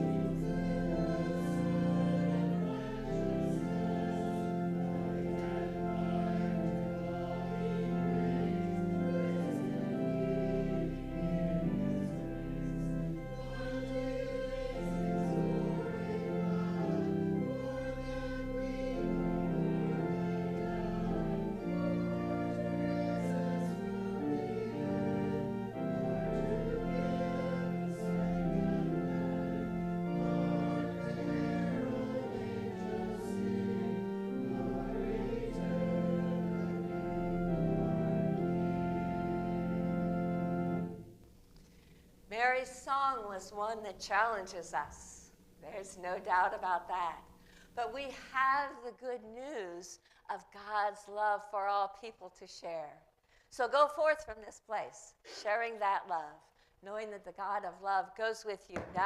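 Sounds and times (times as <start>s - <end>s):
voices singing a hymn: 0.0s - 41.1s
organ playing chords: 0.0s - 41.5s.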